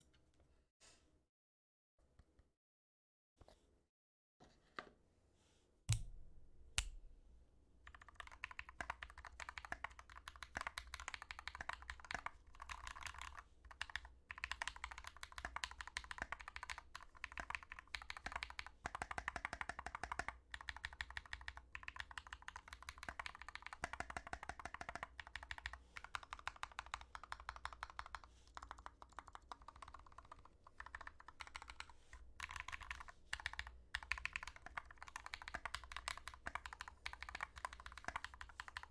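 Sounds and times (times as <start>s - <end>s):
mechanical keyboard typing: 7.9s - 38.9s.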